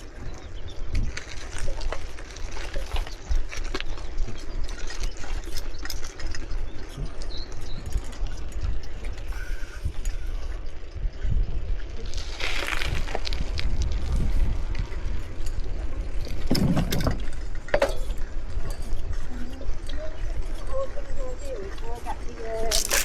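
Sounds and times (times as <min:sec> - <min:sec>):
wind buffeting microphone: 0:00.0 - 0:23.0
bicycle clicks and rattles: 0:01.0 - 0:10.2, 0:12.0 - 0:18.0, 0:22.7 - 0:23.0.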